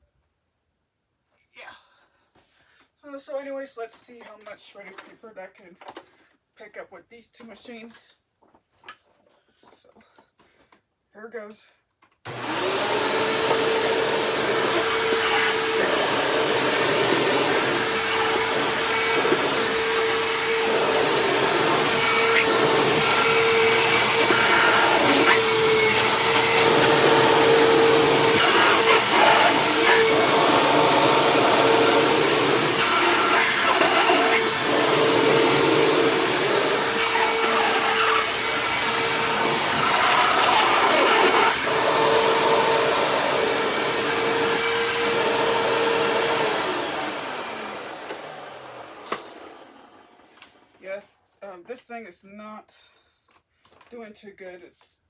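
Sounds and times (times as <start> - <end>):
vacuum sucking up paper: 12.3 - 50.6
upright vacuum whining: 12.3 - 50.8.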